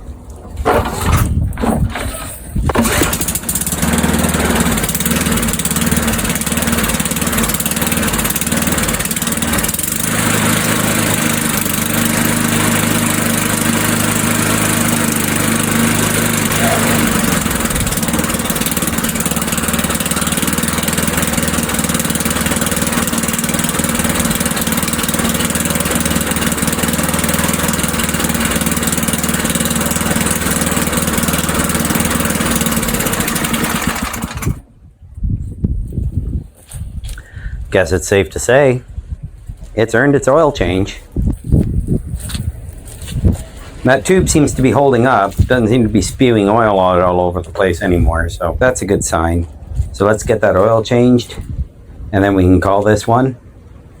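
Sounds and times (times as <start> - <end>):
lawnmower engine running: 0.0 - 34.8, 41.3 - 47.8.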